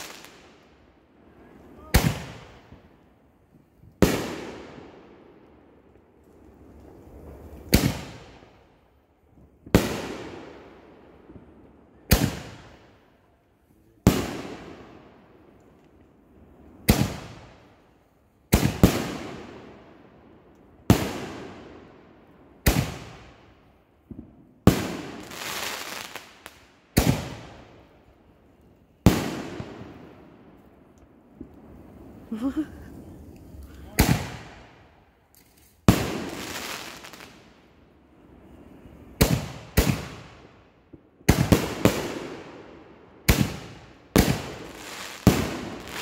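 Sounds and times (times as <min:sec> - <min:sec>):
fireworks bangs with echo: 0:01.4 - 0:02.9, 0:07.5 - 0:08.4, 0:11.2 - 0:12.8, 0:14.0 - 0:15.2, 0:16.7 - 0:17.6, 0:18.5 - 0:19.8, 0:22.6 - 0:26.3, 0:26.9 - 0:27.8, 0:33.9 - 0:34.9, 0:35.8 - 0:37.4, 0:39.2 - 0:46.0.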